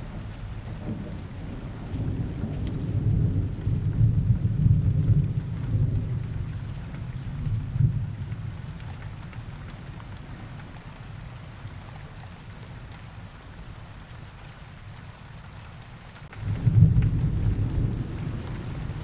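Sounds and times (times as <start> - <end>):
steady rain: 0.0 - 19.0
raindrop ticks: 2.4 - 2.8, 16.1 - 19.0
rolling thunder: 16.4 - 19.0.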